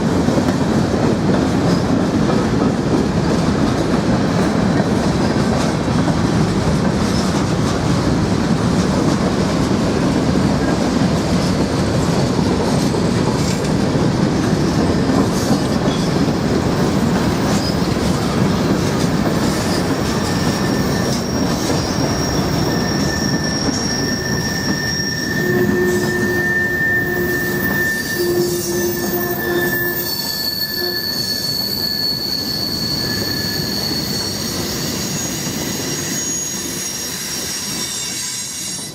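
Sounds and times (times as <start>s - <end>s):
freight train wheels rumbling: 0.0s - 38.9s
high-pitched wheel squeals: 19.4s - 38.9s.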